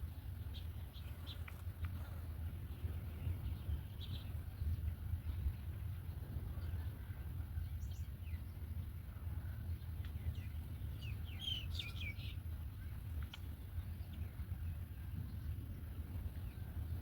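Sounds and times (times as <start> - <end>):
low background rumble: 0.0 - 17.0
bird chirping: 10.1 - 14.3.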